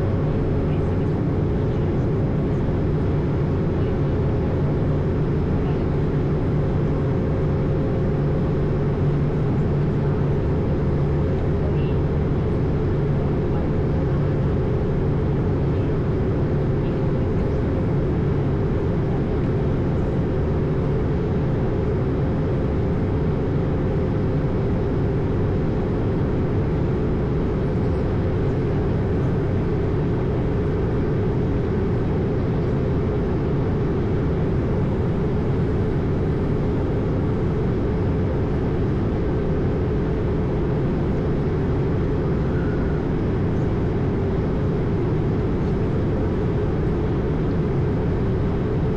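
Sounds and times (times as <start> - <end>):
aircraft cabin airflow and engine drone: 0.0 - 48.9
faint steady hum: 0.0 - 48.9.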